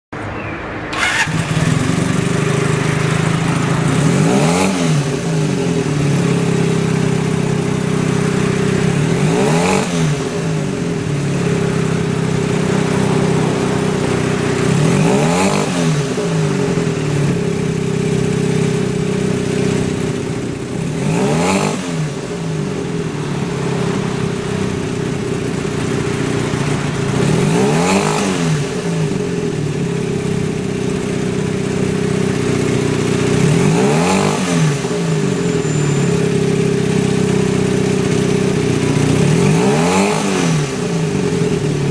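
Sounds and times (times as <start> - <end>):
engine throttle blips: 0.2 - 30.6
motorcycle engine idling: 0.9 - 41.9.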